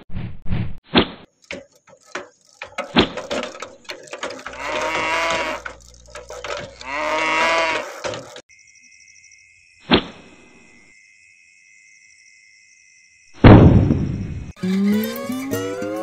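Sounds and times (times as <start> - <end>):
knocks and clicks: 1.2 - 8.5
cow mooing: 4.2 - 8.3.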